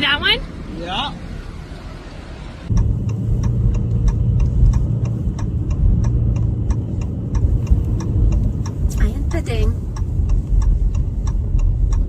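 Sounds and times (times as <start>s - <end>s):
vehicle engine rumbling: 0.0s - 12.0s
rapid ticking: 2.7s - 12.0s.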